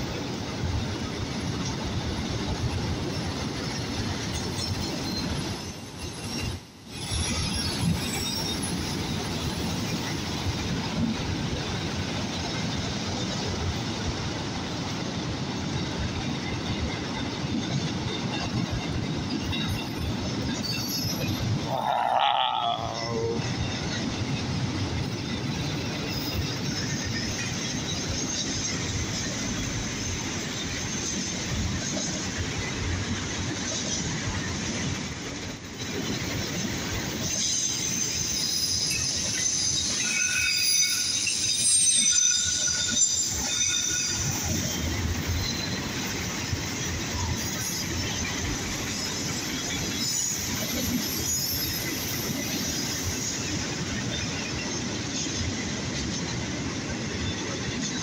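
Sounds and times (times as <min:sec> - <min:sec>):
railroad cars rumbling past: 0:00.0 - 0:58.0
wheel squeal: 0:20.5 - 0:23.5.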